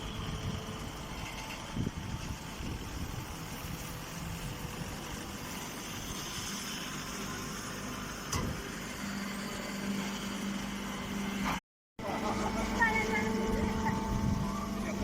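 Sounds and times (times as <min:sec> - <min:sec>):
steady low hum: 0:12.0 - 0:15.0.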